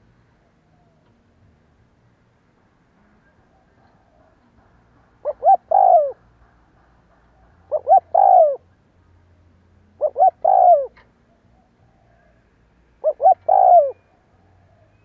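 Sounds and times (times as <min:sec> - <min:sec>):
dove cooing: 0:05.2 - 0:06.2, 0:07.7 - 0:08.7, 0:10.0 - 0:12.4, 0:13.0 - 0:14.9.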